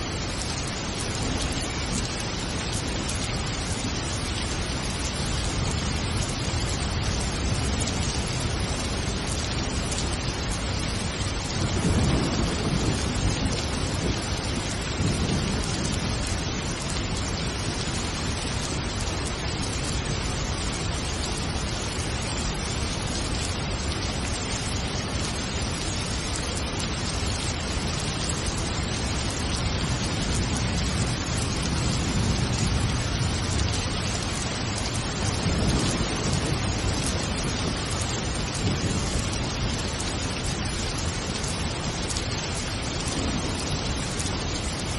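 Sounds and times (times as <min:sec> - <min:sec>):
heavy rain falling: 0:00.0 - 0:44.9
low rolls of thunder: 0:11.6 - 0:18.0, 0:29.8 - 0:40.2.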